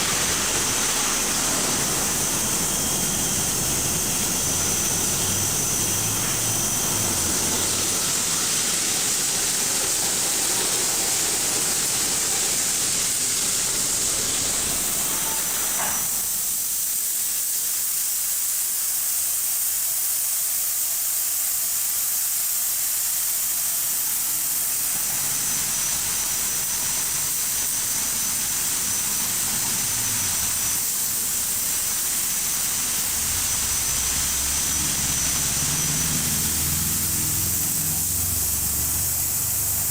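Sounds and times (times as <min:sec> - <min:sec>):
car wash spraying water: 0:00.0 - 0:39.9.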